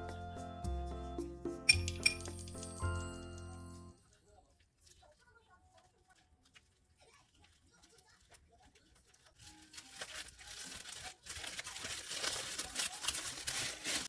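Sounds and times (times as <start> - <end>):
crinkling and rustling: 4.0 - 14.0.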